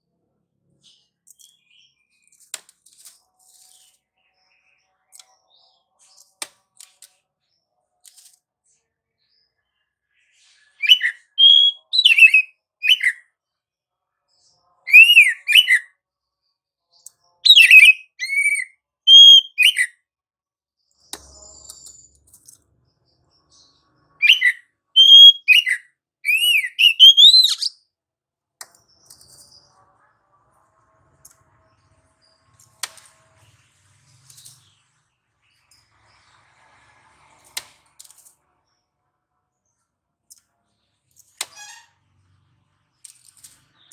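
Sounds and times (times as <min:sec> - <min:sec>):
bird singing whistled phrases: 0:10.8 - 0:13.2, 0:14.9 - 0:15.9, 0:17.4 - 0:19.9, 0:24.2 - 0:27.7.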